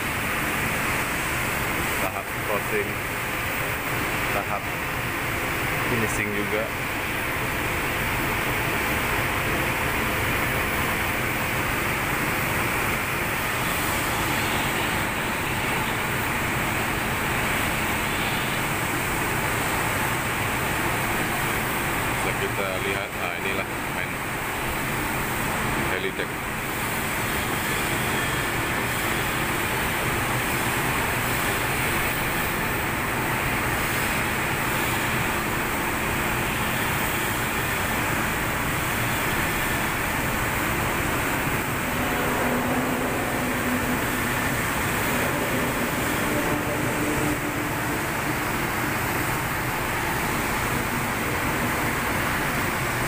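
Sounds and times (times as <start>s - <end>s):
steady rushing noise: 38.0s - 53.0s.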